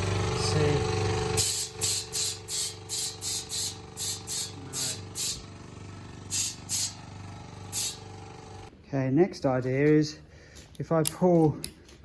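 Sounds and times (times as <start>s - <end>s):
compressed air blasts hissing: 1.3s - 5.4s, 6.3s - 7.0s, 7.7s - 8.0s.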